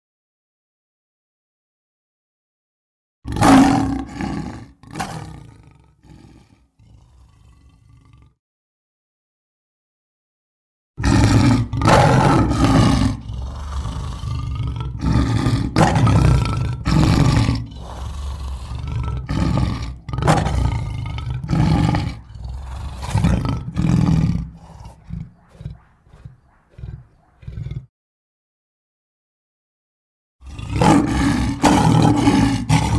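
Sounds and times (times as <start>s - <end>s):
lion grunting: 3.3s - 8.4s, 11.0s - 27.9s, 30.4s - 32.9s
lion roaring: 3.3s - 8.4s, 11.0s - 27.9s, 30.4s - 32.9s.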